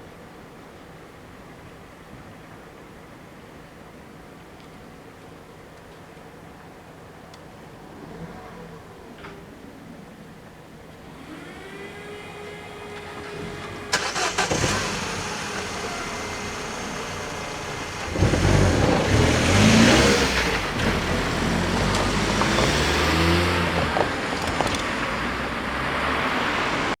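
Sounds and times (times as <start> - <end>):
vehicle engines passing: 7.7 - 10.3, 11.0 - 27.0.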